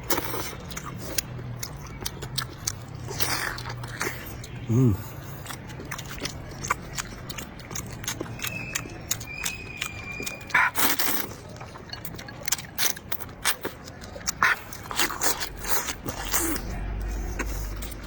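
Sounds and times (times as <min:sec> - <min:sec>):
wet chewing and lip-smacking: 0:00.0 - 0:18.0
faint high whistle: 0:08.4 - 0:10.6.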